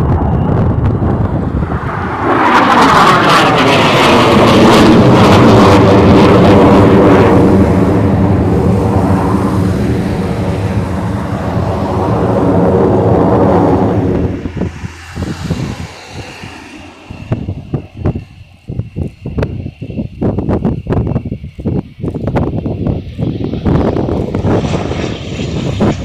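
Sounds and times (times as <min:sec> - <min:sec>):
falling tone sweep: 0:00.0 - 0:18.6
jet roaring overhead: 0:00.0 - 0:26.0.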